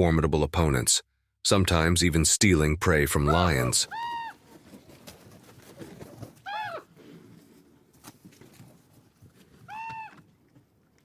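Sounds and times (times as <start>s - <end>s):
animal high call: 3.2s - 4.4s, 6.4s - 6.9s, 9.7s - 10.2s.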